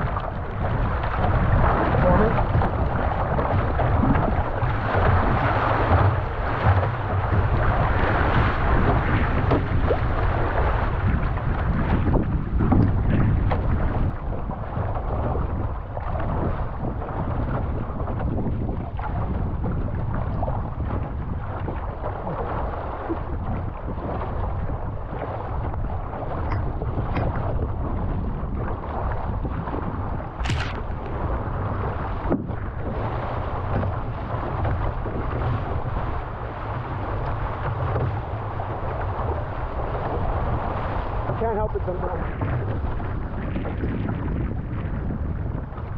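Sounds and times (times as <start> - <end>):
water rushing along canoe hull: 0.0 - 45.9
wind buffeting microphone: 0.0 - 45.9
sharp tap: 30.4 - 30.9.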